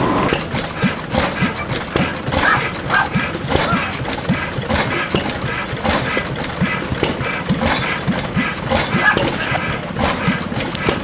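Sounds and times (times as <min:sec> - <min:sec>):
gas engine exhaust pops: 0:00.0 - 0:11.0
steady engine din: 0:00.0 - 0:11.0.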